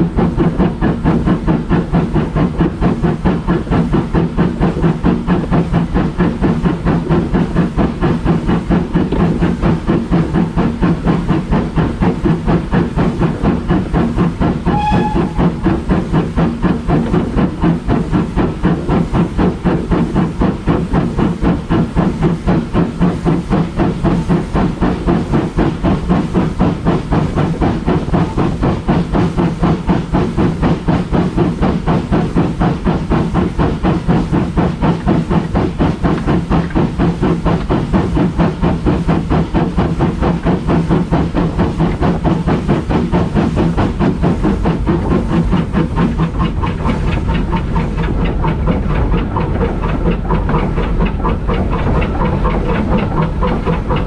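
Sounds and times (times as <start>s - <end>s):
railway locomotive running: 0.0s - 54.0s
short high tone: 14.7s - 15.7s.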